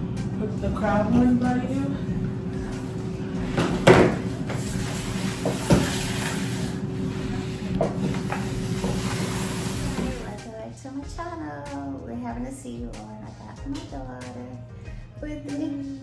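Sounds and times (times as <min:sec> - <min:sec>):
steady low hum: 0:00.0 - 0:16.0
trays knocking on table: 0:03.5 - 0:04.3.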